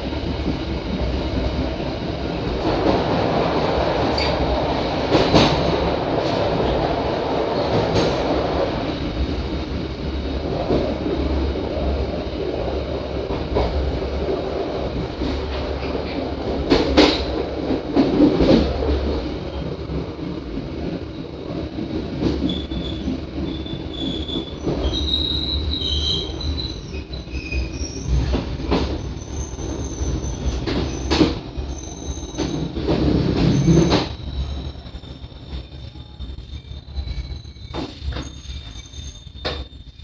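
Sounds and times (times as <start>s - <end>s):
train wheels rumbling on rails: 0.0s - 40.0s
high wheel squeal: 22.4s - 32.8s, 33.4s - 40.0s.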